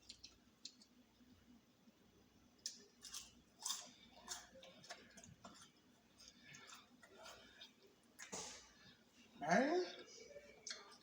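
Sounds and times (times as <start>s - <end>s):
person chewing crunchy food: 2.6s - 8.7s.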